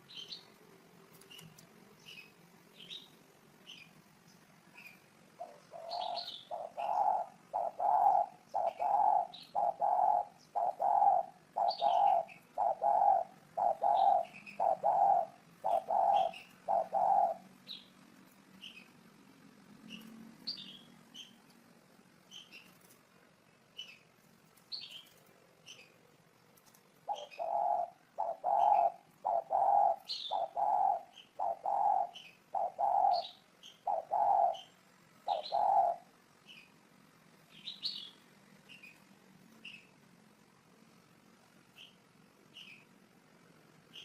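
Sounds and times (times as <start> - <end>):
small birds chirping: 0.0 - 44.0
dove cooing: 5.4 - 17.6, 27.0 - 36.1.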